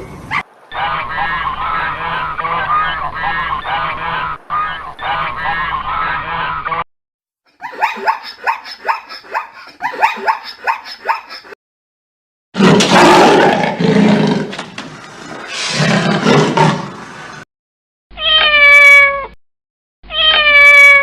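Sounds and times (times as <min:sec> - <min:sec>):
animal roaring: 0:12.6 - 0:17.4.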